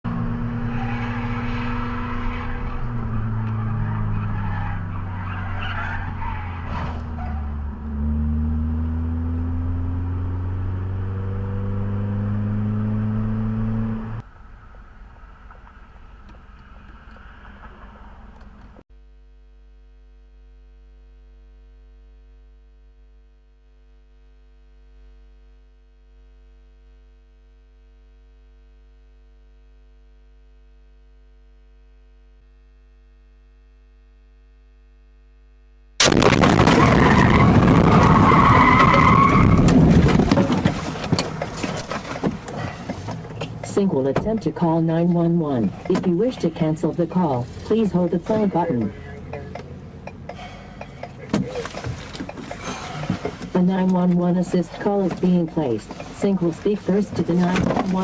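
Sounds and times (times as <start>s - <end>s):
car engine running loud: 0.0s - 18.8s
road noise: 0.0s - 18.8s, 36.0s - 58.0s
tyre squeal: 0.6s - 7.6s, 36.7s - 43.6s.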